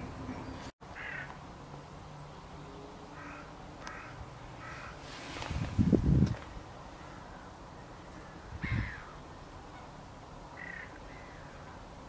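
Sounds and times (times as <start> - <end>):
bird calling: 6.9 - 11.9.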